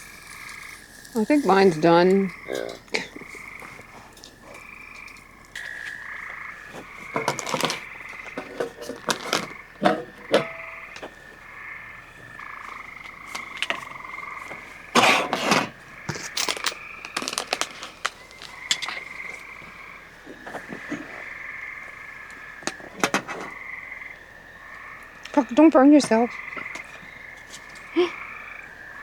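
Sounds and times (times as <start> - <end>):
night chorus of calling animals: 0.0 - 29.0.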